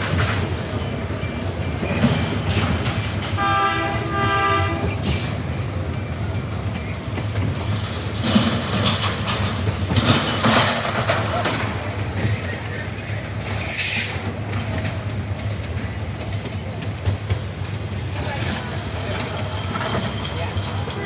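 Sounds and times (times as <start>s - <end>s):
ride train rumbling on track: 0.0s - 21.0s
train horn toots: 3.4s - 5.1s.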